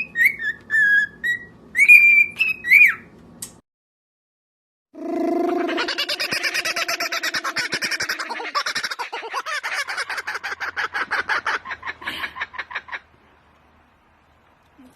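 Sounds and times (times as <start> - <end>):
bird clucking calls: 5.5 - 13.1.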